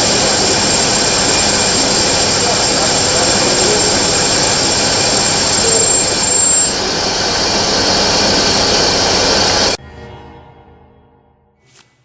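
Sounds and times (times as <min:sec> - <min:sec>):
lathe machining noise: 0:00.0 - 0:09.8
thin high whine: 0:00.0 - 0:09.8.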